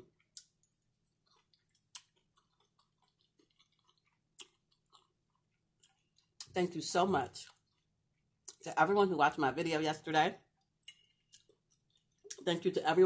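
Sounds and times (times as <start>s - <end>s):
faint close-up chewing: 0.0s - 6.5s, 7.4s - 8.6s, 10.6s - 12.4s.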